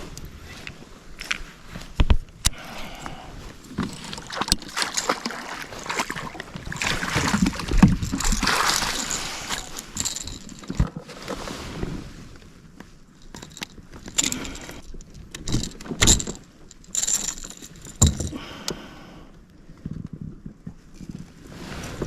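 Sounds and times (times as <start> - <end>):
water splashing against kayak: 3.1 - 12.0.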